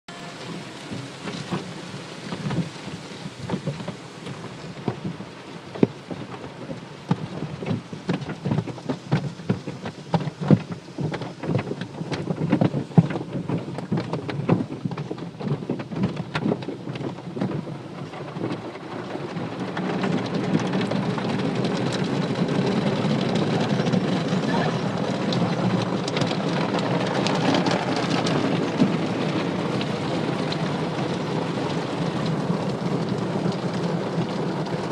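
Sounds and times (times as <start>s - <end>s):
water spray hitting a car: 0.1s - 34.9s.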